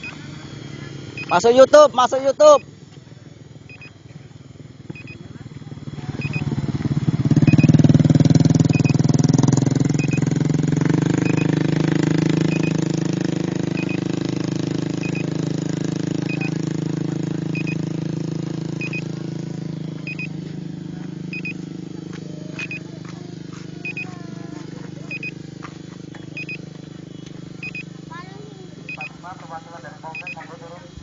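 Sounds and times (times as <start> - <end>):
faint double beep: 0.0 - 2.7, 3.6 - 4.1, 4.9 - 6.6, 7.4 - 7.9, 8.6 - 9.1, 9.9 - 10.3, 11.1 - 11.6, 12.3 - 14.3, 14.9 - 15.4, 16.2 - 17.9, 18.7 - 19.2, 20.0 - 20.4, 21.3 - 21.6, 22.6 - 22.9, 23.8 - 24.2, 25.0 - 25.4, 26.1 - 28.0, 28.8 - 29.2, 30.0 - 30.7
engine running: 0.0 - 31.0.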